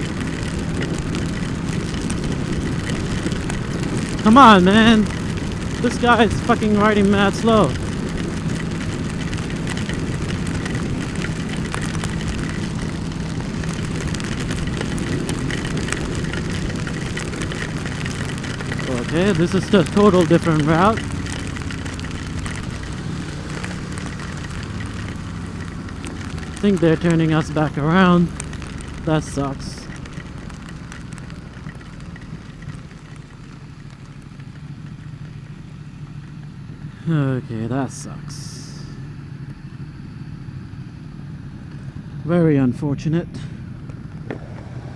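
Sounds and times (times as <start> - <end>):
rain and wind hiss: 0.0 - 39.2
raindrops ticking: 0.0 - 39.6
motorcycle engine running: 0.0 - 44.9.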